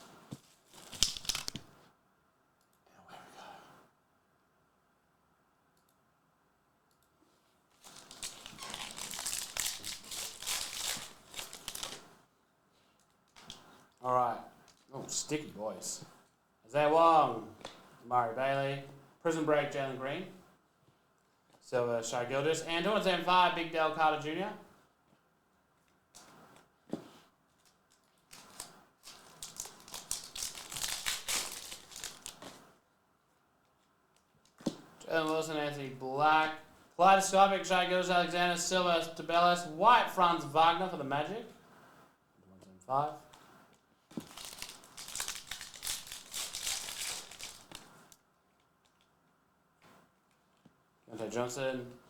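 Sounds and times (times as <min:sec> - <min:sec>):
cards rustling: 0:00.4 - 0:01.7, 0:07.8 - 0:12.1, 0:28.3 - 0:32.6, 0:44.1 - 0:47.9
wrapper tearing and crinkling: 0:00.6 - 0:01.6, 0:07.8 - 0:12.1, 0:27.6 - 0:32.6, 0:44.2 - 0:47.9.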